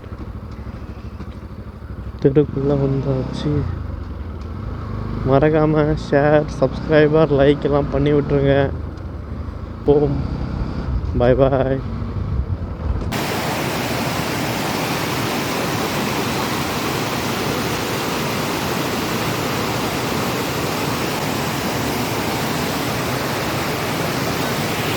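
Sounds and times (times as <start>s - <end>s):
steady static hiss: 13.1s - 24.9s.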